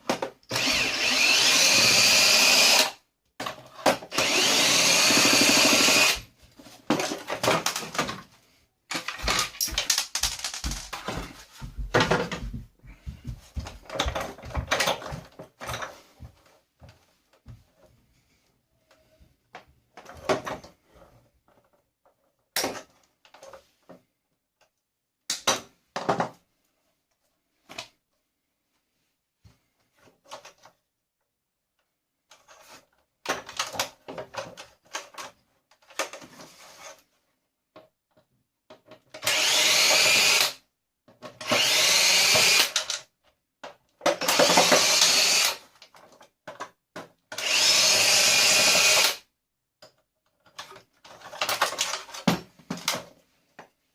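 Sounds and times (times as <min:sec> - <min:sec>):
plastic parts knocking and clicking: 0:00.0 - 0:00.7, 0:03.4 - 0:08.3, 0:08.9 - 0:12.7, 0:13.3 - 0:16.0, 0:21.5 - 0:24.0, 0:25.3 - 0:26.4, 0:32.3 - 0:36.4, 0:42.3 - 0:45.0, 0:45.8 - 0:47.5, 0:49.8 - 0:53.7
power drill motor: 0:00.5 - 0:03.0, 0:04.1 - 0:06.3, 0:39.2 - 0:40.6, 0:41.4 - 0:42.8, 0:44.2 - 0:45.6, 0:47.4 - 0:49.2.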